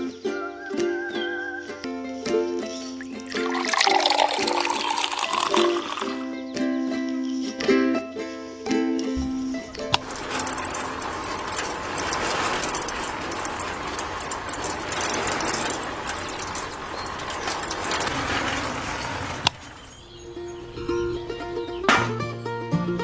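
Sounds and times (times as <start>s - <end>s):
small machine gears whirring: 9.5s - 20.1s.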